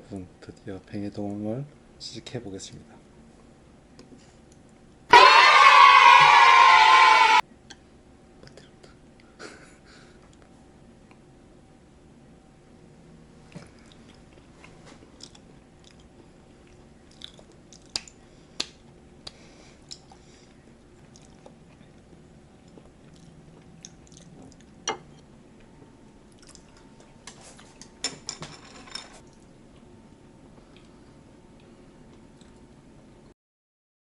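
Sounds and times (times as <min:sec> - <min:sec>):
person chewing: 0:13.6 - 0:24.8, 0:25.6 - 0:27.9, 0:30.6 - 0:31.0, 0:31.6 - 0:32.7.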